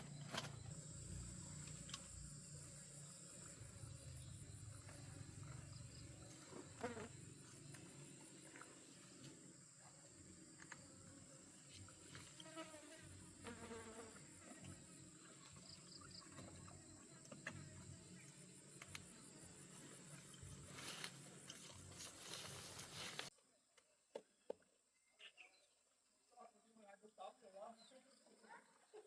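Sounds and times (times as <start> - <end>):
high-pitched insect buzz: 0.1 - 9.4, 11.0 - 16.4.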